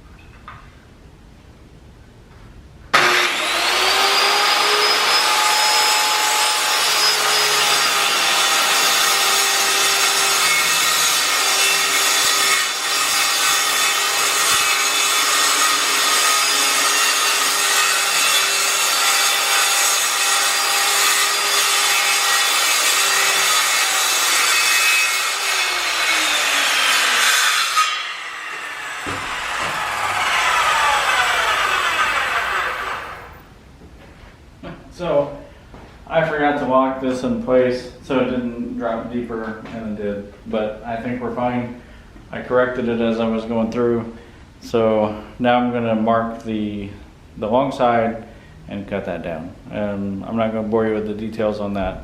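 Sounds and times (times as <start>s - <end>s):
saw cutting plywood: 3.0s - 33.4s
circular saw whine: 28.0s - 33.5s.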